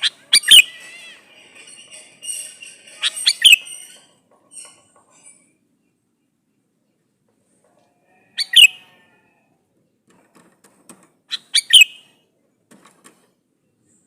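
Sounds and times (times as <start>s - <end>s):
bird calling with sharp high notes: 0.0s - 0.9s, 2.4s - 4.1s, 11.3s - 12.1s.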